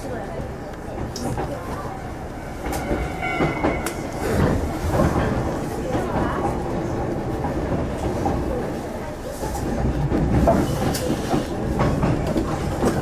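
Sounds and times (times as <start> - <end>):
train rumbling on track: 0.0 - 13.0
wheels clicking over rail joints: 9.4 - 13.0.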